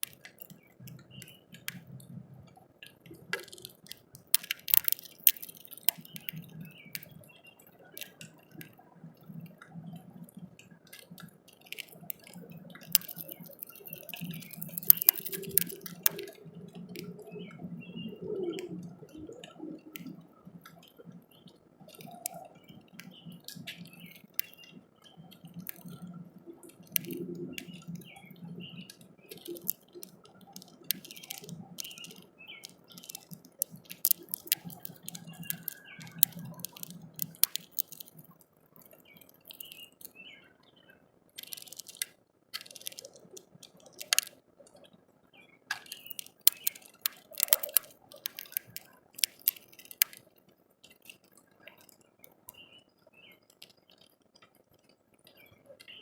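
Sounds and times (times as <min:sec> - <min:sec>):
bird beak pecking seeds: 0:02.8 - 0:10.0, 0:10.9 - 0:17.4, 0:19.8 - 0:40.2, 0:41.4 - 0:44.4, 0:45.7 - 0:52.7.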